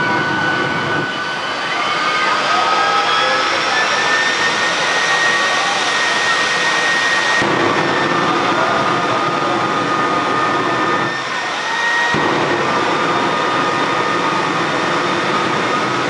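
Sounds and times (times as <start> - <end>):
deep rumble: 0.0 - 2.4, 7.4 - 11.2, 12.2 - 16.0
jet engine whine and blast: 0.0 - 16.0.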